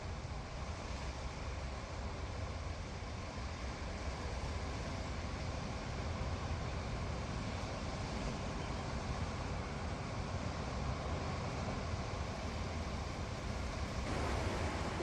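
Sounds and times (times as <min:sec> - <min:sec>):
wind: 0:00.0 - 0:15.0
sea surf: 0:09.2 - 0:15.0.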